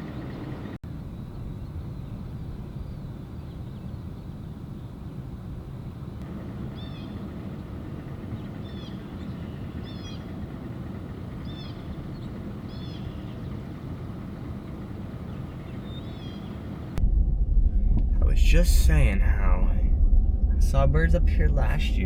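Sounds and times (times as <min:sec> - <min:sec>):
truck engine rumbling: 0:00.0 - 0:22.0
songbird chirping: 0:06.7 - 0:17.0.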